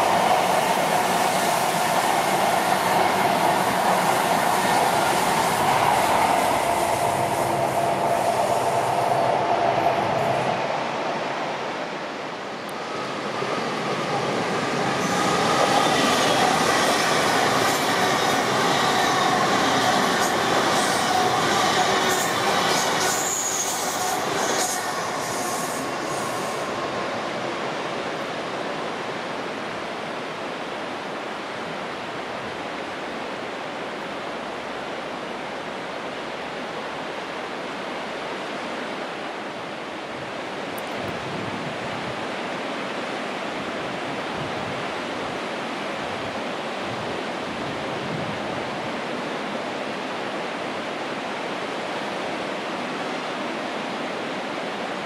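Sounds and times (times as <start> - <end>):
steady rushing noise: 0.0 - 55.0
train wheels squealing: 14.9 - 27.0.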